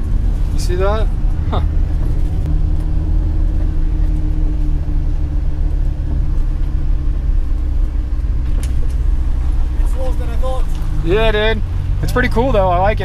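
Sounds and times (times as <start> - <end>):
car driving on gravel: 0.0 - 13.0.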